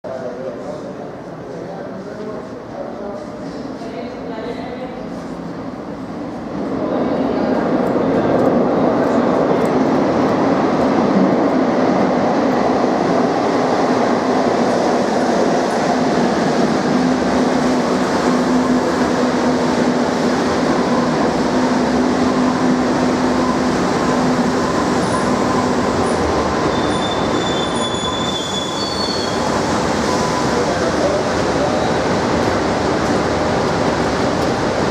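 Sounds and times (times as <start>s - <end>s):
metro train wheels and motors: 0.1s - 34.9s
high brake squeals: 24.7s - 30.8s.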